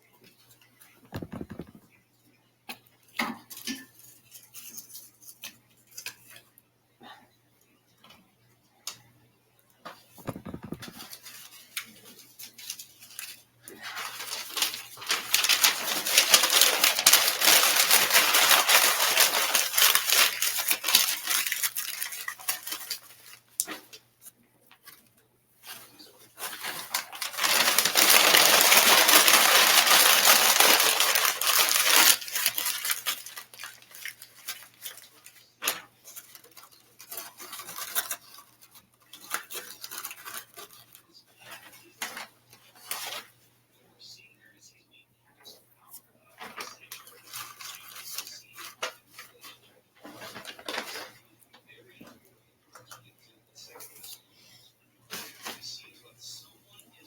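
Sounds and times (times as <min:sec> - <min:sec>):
clicks and knocks: 0:01.2 - 0:01.8.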